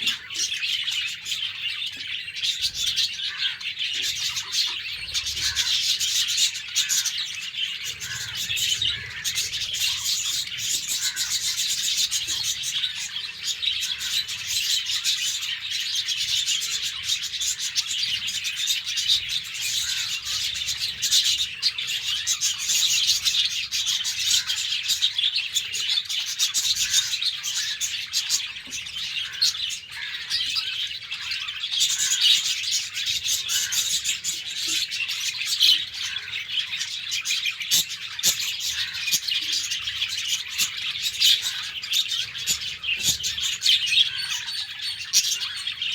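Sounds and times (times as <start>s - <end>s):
budgerigars chirping and chattering: 0.0s - 45.9s.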